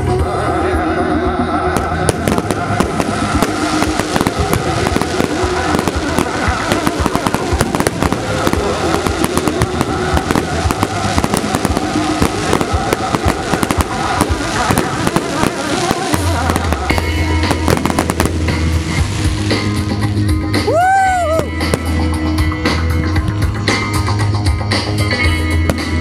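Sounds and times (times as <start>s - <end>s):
music playing: 0.0s - 26.0s
fireworks cracks and bangs: 1.7s - 22.1s, 25.7s - 26.0s.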